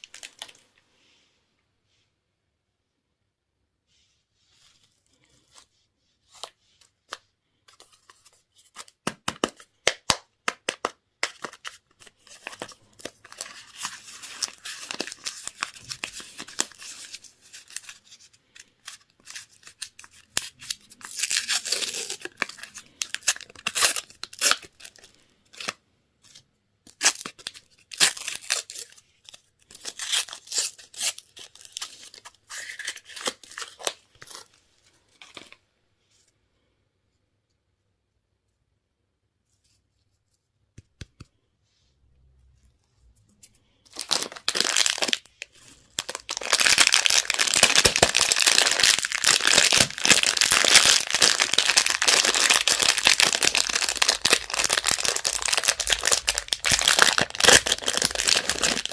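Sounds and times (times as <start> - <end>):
wrappers tearing and crinkling: 19.3 - 25.7, 43.9 - 58.9.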